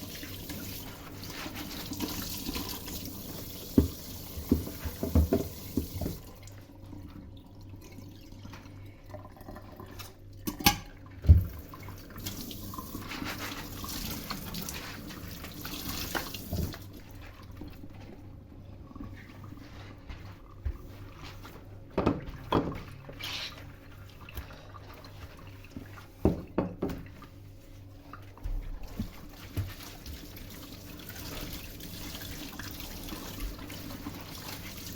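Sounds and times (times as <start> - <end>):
tap running into sink: 2.0 - 6.3, 10.5 - 11.6, 16.0 - 16.8
dishes knocking and clinking: 4.5 - 6.2, 22.0 - 22.8, 26.2 - 27.1.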